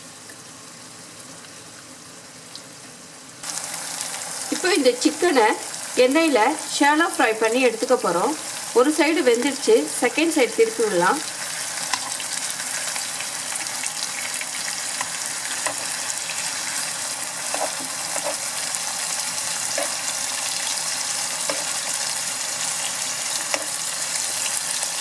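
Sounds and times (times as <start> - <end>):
chicken sizzling in oil: 0.0 - 25.0
spoon tapping and scraping pan: 15.0 - 15.9, 17.5 - 18.5, 19.7 - 20.0, 21.4 - 21.8, 23.4 - 23.8.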